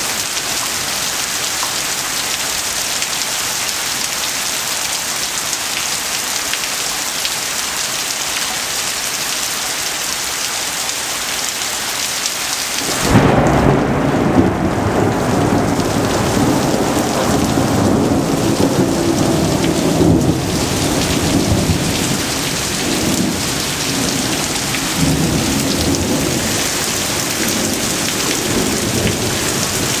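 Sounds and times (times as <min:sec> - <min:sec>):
heavy rain pouring: 0:00.0 - 0:30.0
thunder rumbling: 0:12.8 - 0:30.0.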